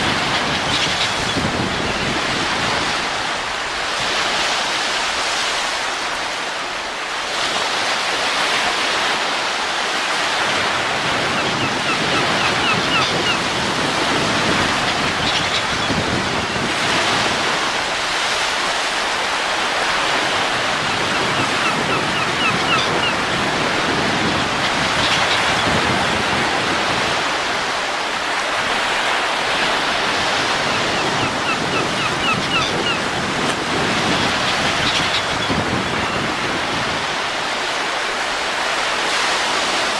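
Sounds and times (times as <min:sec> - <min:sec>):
rushing wind: 0:00.0 - 0:39.9.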